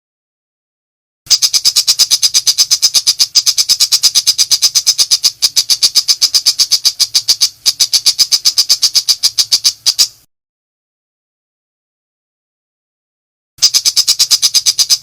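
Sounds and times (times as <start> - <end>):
shrike singing rapid chatter: 1.3 - 10.2, 13.6 - 15.0.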